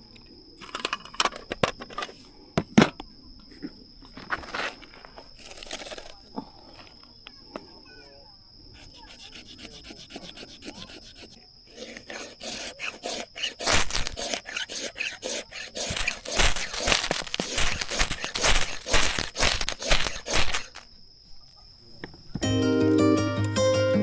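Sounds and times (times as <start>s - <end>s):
hand tool scraping firewood: 5.4s - 6.2s, 8.8s - 20.9s.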